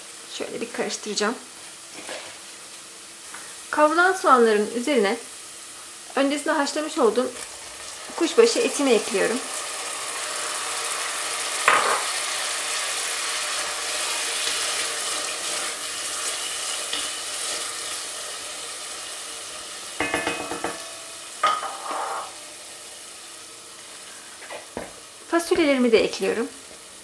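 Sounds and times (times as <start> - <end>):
meat and onions sizzling in oil: 0.0 - 27.0
spoon knocking and scraping: 20.0 - 22.3.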